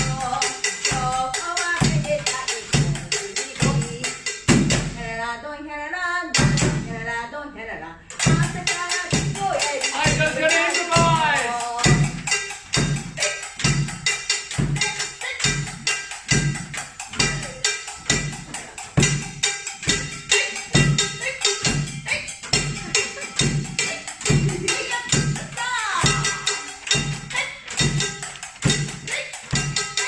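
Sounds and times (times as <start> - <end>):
person singing: 0.0 - 4.1, 7.0 - 12.2
low drum beat: 0.0 - 5.0, 8.2 - 14.0, 14.6 - 29.8.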